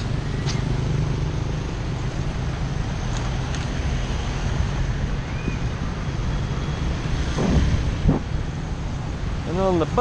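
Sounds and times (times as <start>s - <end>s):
wind rushing over microphone: 4.5s - 10.0s.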